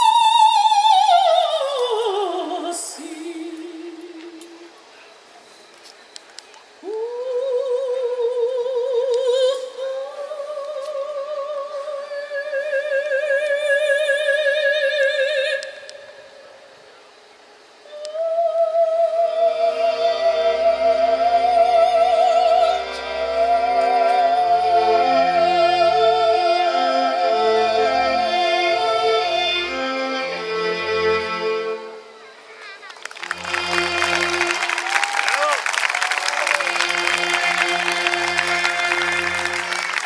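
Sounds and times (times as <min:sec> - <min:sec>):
symphonic ensemble playing: 0:33.2 - 0:34.8, 0:36.7 - 0:40.0.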